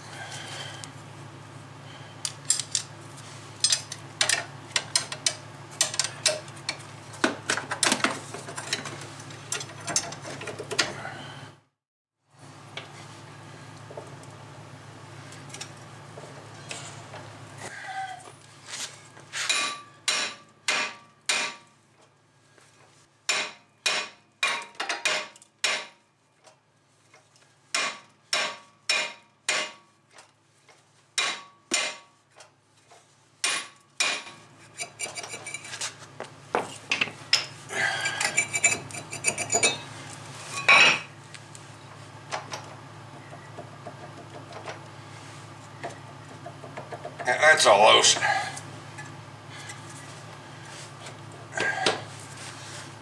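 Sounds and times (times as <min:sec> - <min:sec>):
hammer striking metal: 0:19.5 - 0:21.7, 0:23.3 - 0:26.0, 0:27.7 - 0:29.9, 0:31.2 - 0:32.1, 0:33.4 - 0:34.4
metal rattling and scraping: 0:34.3 - 0:41.1
metal clanks: 0:36.6 - 0:39.9.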